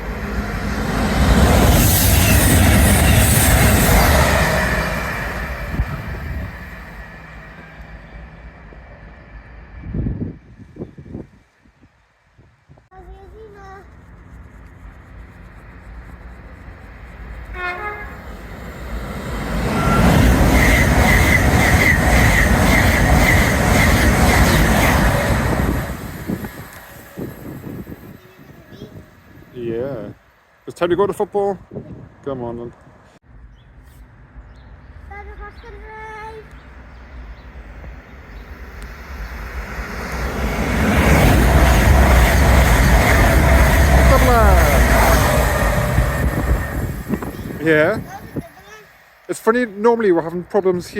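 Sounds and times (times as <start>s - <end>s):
train wheels rumbling on rail: 0.0s - 11.8s, 13.0s - 30.2s, 34.8s - 50.9s
train horn blast: 17.5s - 18.4s.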